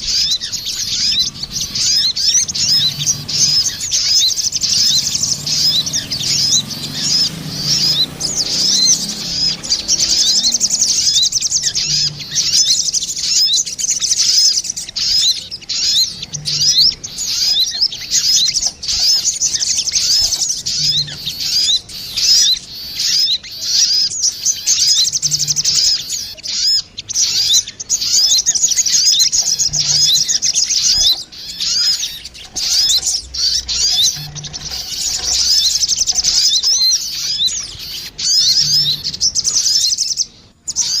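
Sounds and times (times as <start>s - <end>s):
birds chirping and trilling: 0.0s - 41.0s.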